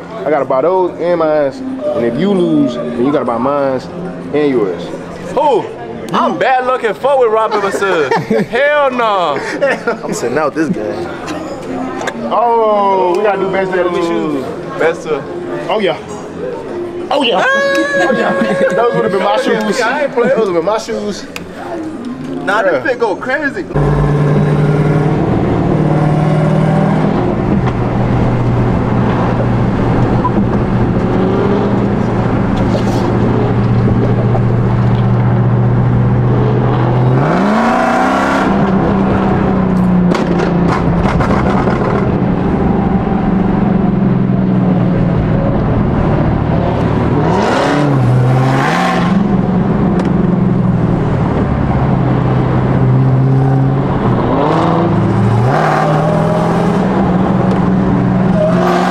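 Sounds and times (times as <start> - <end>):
car engines running: 0.0 - 58.9
car engine revving: 21.1 - 58.9.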